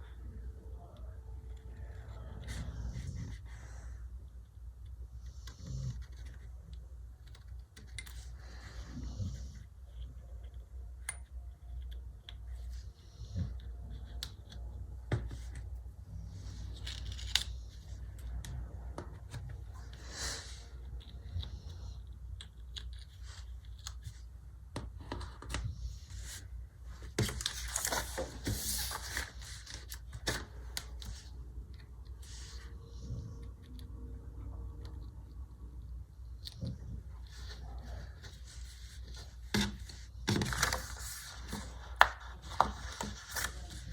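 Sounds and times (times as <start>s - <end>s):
steady low hum: 0.0s - 43.9s
paper rustling: 25.5s - 31.3s, 37.2s - 43.9s.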